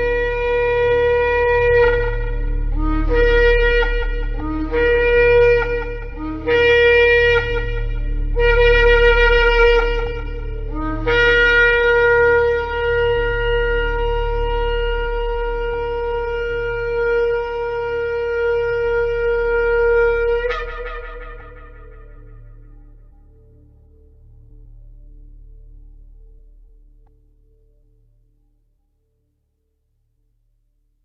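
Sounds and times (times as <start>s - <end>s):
shofar blasts: 0.0s - 23.2s.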